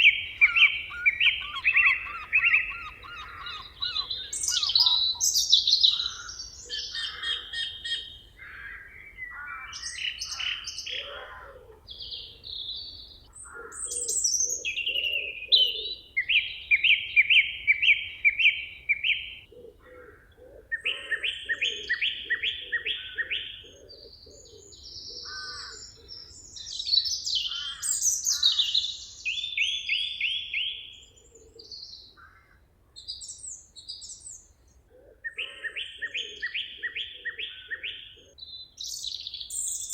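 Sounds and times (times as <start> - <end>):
bird trills: 0.0 - 11.1
lower repeated bird notes: 0.0 - 39.9
songbirds singing: 0.0 - 39.9.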